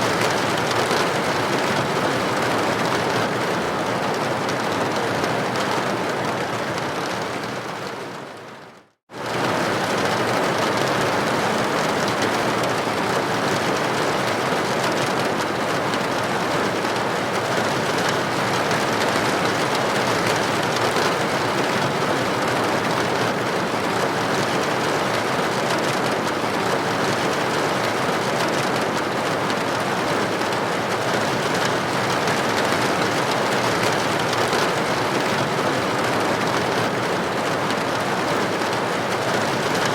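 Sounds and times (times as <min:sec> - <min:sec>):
rain on a window: 0:00.0 - 0:39.9.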